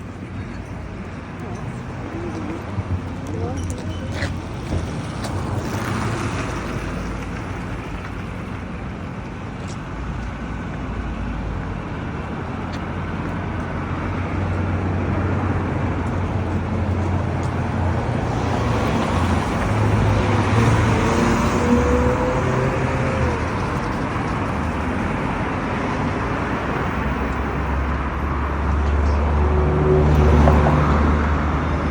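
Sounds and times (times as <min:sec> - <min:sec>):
cars passing: 0:00.0 - 0:31.9
heavy vehicle engine hum: 0:00.0 - 0:31.9.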